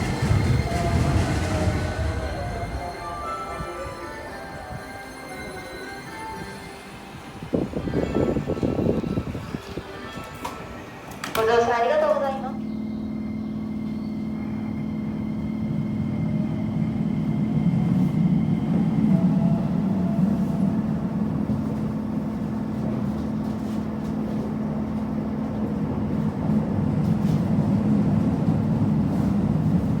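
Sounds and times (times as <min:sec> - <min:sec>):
rumbling wheel noise: 0:00.0 - 0:03.2.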